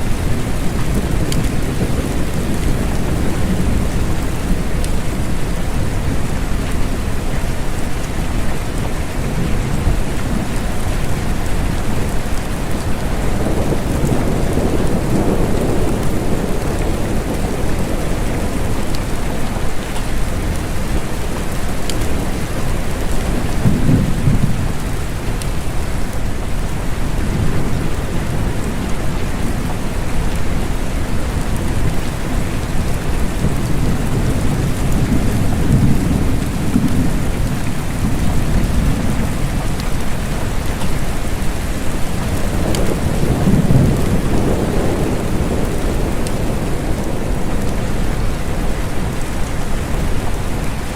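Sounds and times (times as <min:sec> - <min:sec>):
steady gentle rain: 0:00.0 - 0:50.9.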